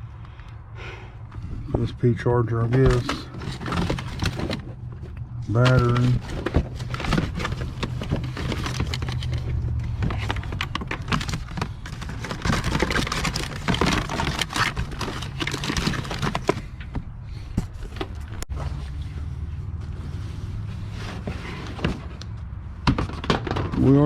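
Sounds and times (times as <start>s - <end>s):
rummaging through small objects: 2.7s - 16.8s
rustling plastic packaging: 2.8s - 4.9s, 5.5s - 16.7s.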